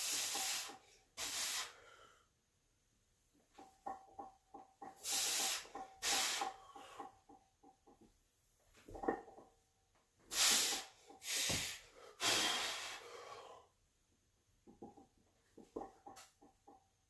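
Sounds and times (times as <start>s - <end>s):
person breathing hard: 1.6s - 2.3s, 10.3s - 13.8s.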